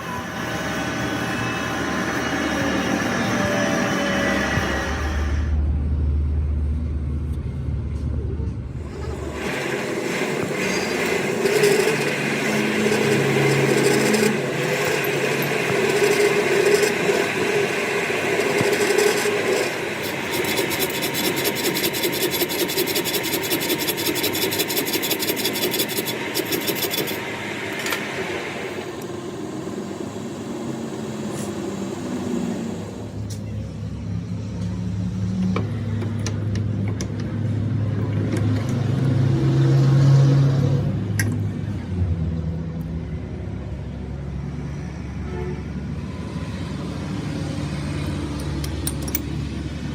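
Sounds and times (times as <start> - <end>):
machine running: 0.0 - 5.9, 8.7 - 33.3
metal scraping: 10.2 - 28.0.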